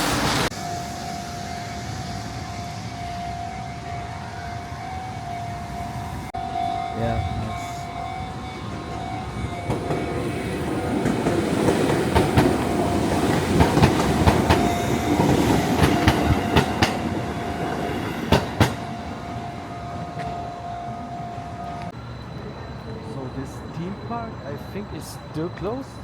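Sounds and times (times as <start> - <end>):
steady high whine: 0.0 - 26.0
train rumbling: 0.0 - 26.0
wheels clicking over rail joints: 8.0 - 26.0.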